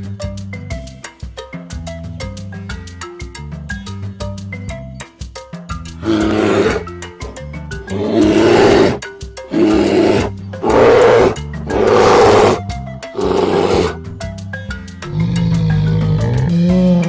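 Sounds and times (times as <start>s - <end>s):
marimba background music: 0.0s - 17.0s
bear roaring: 6.0s - 12.6s, 13.2s - 14.2s, 15.1s - 17.0s.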